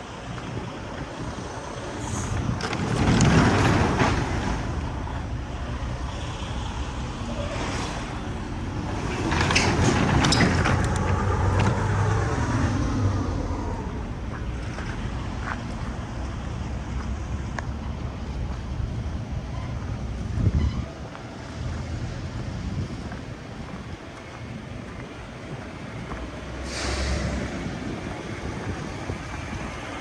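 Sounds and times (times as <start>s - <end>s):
van engine running: 8.3s - 30.0s.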